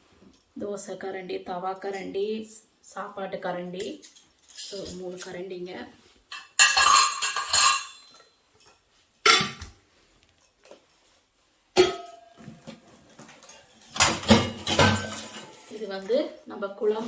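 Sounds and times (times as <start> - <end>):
toy dishes clinking and clattering: 6.3 - 8.3, 13.4 - 15.9.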